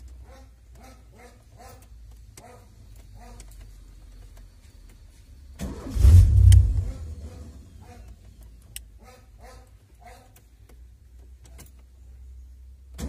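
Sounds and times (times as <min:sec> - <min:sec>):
rough car engine revving: 0:05.6 - 0:07.8.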